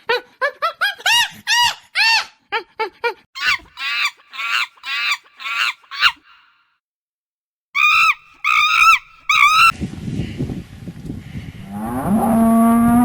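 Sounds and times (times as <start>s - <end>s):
bird calls: 3.4s - 6.4s, 7.8s - 9.7s.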